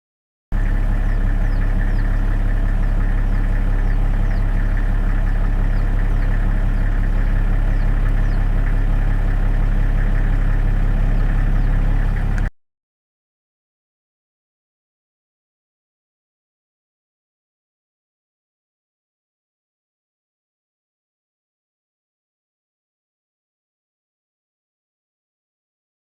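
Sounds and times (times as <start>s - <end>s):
engine-like drone: 0.5s - 12.5s.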